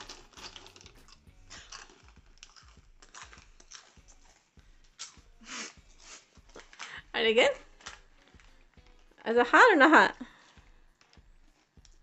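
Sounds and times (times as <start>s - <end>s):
person crunching chips: 0.0s - 9.3s.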